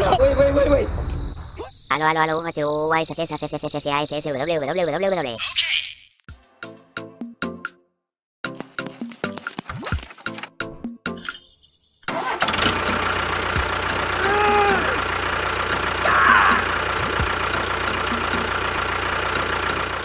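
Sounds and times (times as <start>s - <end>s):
engine running steadily: 12.2s - 20.0s.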